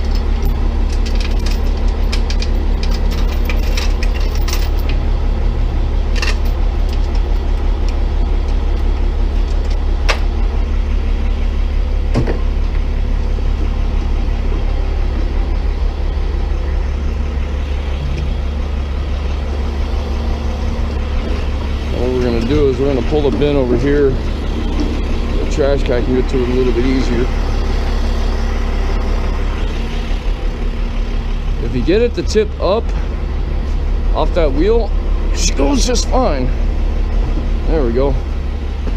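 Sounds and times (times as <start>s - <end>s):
chain clinking: 0.0s - 5.0s
tow truck engine idling: 0.0s - 38.9s.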